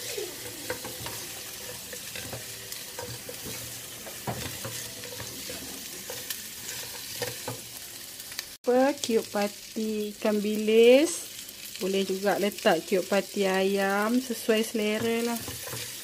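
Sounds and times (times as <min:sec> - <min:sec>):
spatula scraping a pan: 0:00.0 - 0:07.7, 0:14.7 - 0:16.0
chicken sizzling in a wok: 0:00.0 - 0:16.0.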